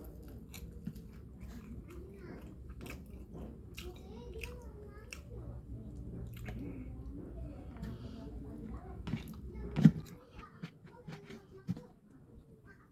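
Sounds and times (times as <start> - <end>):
person chewing food: 0.0 - 5.4, 6.0 - 7.2, 9.0 - 11.8.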